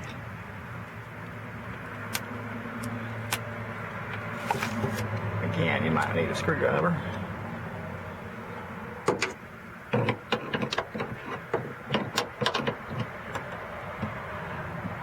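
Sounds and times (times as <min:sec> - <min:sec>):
car door parts clicking and knocking: 0:09.0 - 0:15.0.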